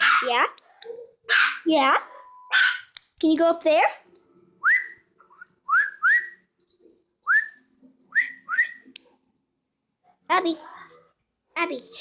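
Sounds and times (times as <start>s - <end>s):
rising short whistles: 4.6s - 6.4s, 7.3s - 8.9s.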